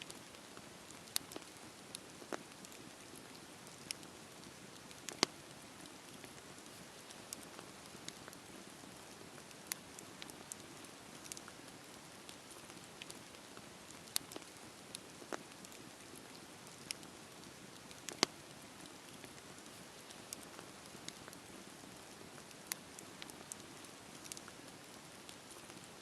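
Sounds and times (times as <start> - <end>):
wood crackling and popping: 0.0 - 26.0
campfire hissing: 0.2 - 26.0.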